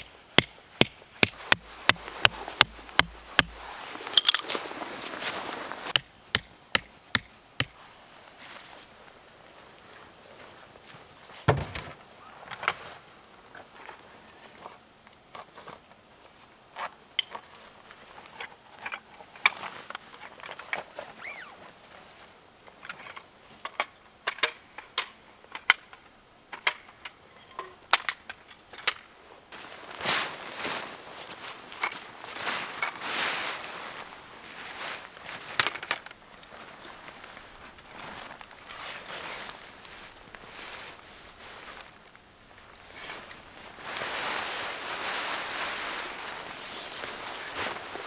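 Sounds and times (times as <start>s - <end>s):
camping gear clicks and knocks: 0.0s - 4.8s, 11.3s - 12.9s, 16.8s - 21.4s, 22.6s - 29.2s, 31.2s - 33.1s, 35.4s - 40.4s
heavy thump: 11.5s - 12.0s.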